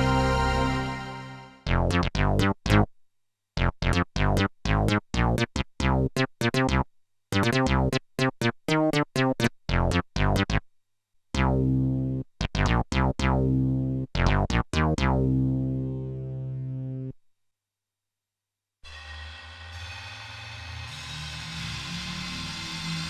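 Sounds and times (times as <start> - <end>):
synthesizer notes: 0.0 - 2.1.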